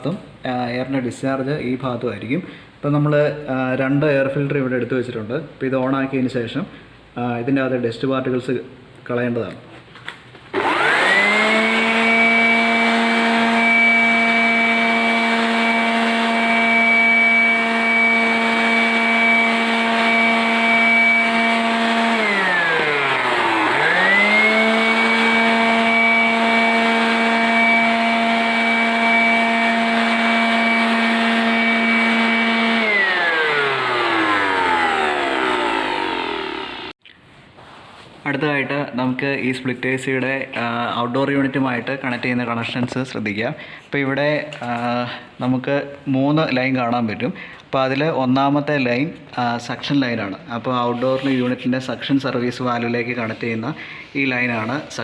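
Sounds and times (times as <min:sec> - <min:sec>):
electric air blower whine: 0:10.5 - 0:37.0.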